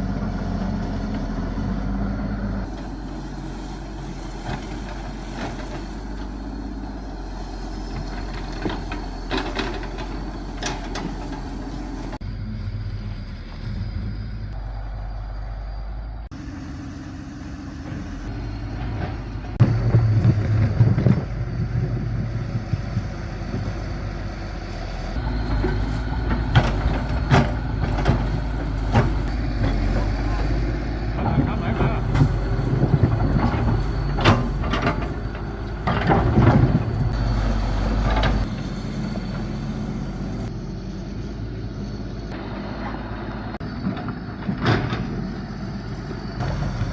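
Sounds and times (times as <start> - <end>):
heavy machinery diesel engine: 0.0 - 46.9
knocks and clanks: 7.3 - 12.2, 25.1 - 37.3.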